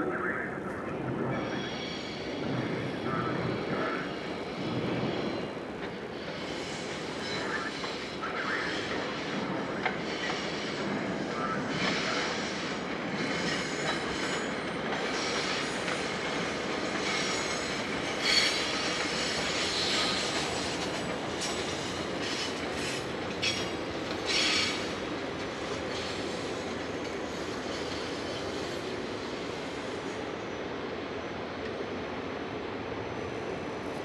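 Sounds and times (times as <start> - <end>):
train wheels on track: 0.0 - 34.0.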